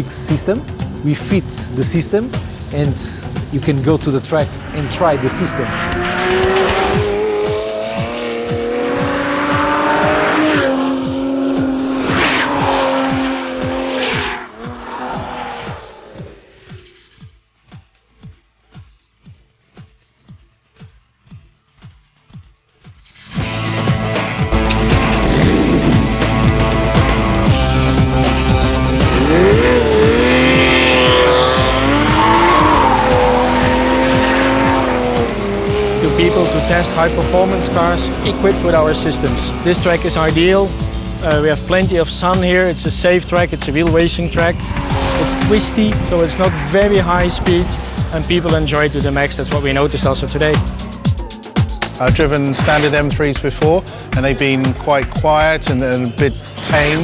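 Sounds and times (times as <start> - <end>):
background music with steady beat: 0.0 - 57.0
car engine revving with gear changes: 3.9 - 16.9, 24.5 - 57.0.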